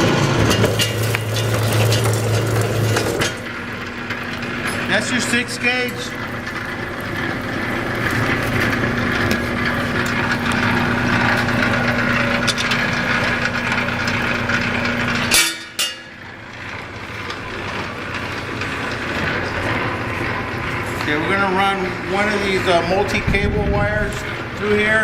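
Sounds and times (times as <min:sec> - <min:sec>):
cable-stripping machine humming: 0:00.0 - 0:25.0.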